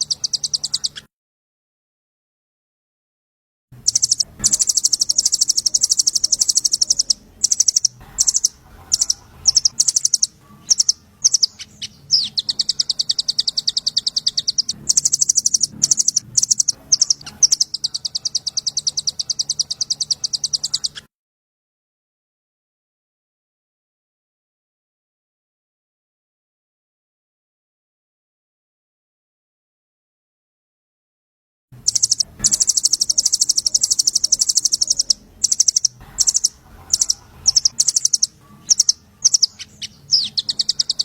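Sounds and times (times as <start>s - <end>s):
songbird chirping rapidly: 0.0s - 1.1s, 3.8s - 21.1s, 31.8s - 41.0s.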